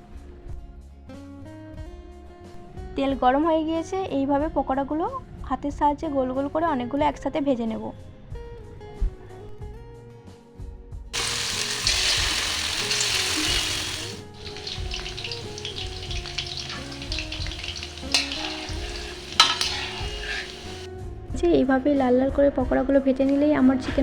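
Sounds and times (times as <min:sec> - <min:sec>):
food sizzling in hot oil: 0:11.2 - 0:20.9
sharp crackles of oil: 0:11.2 - 0:20.9.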